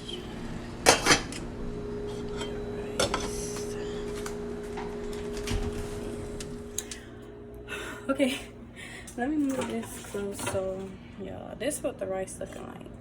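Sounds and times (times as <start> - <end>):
steady hum: 0.0 - 13.0
cookware and utensils clattering: 0.8 - 1.4, 2.1 - 6.5, 9.4 - 10.9.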